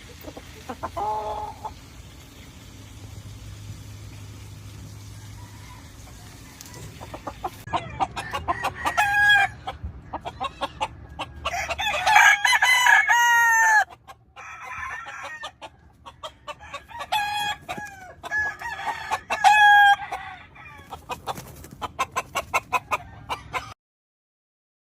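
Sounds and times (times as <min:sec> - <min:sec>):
roosters crowing: 0:00.7 - 0:01.8, 0:04.8 - 0:23.8.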